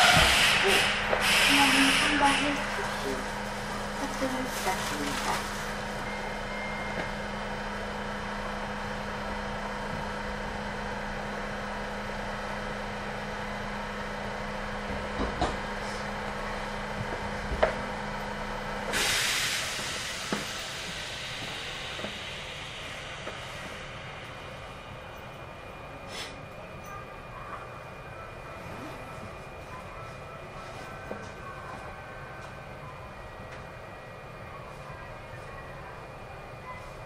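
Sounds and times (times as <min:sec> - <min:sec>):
hiss of released air: 0:00.0 - 0:02.6, 0:18.9 - 0:23.8
electric train hum: 0:00.0 - 0:37.0.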